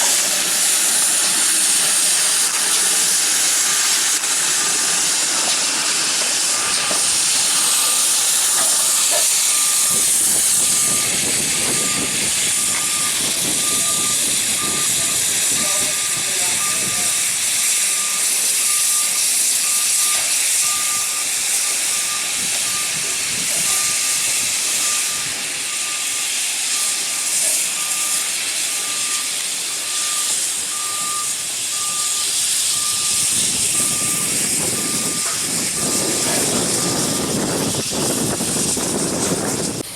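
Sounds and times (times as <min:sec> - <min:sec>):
steam hissing: 0:00.0 - 0:39.9
short high beeps: 0:10.8 - 0:17.2, 0:17.9 - 0:24.1, 0:28.8 - 0:37.4.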